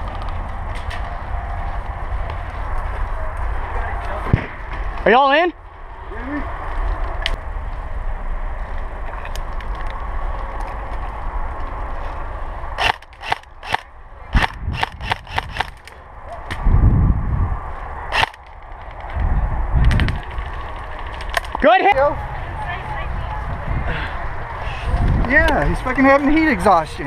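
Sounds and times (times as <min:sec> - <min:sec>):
low rumble: 0:05.6 - 0:21.5.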